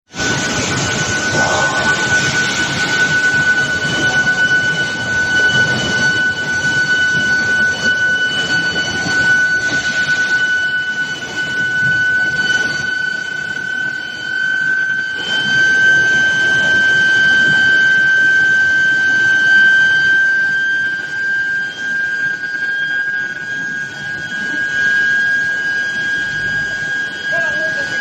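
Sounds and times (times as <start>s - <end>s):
machinery background noise: 0.2s - 10.1s
high-pitched electrical whine: 0.2s - 28.0s.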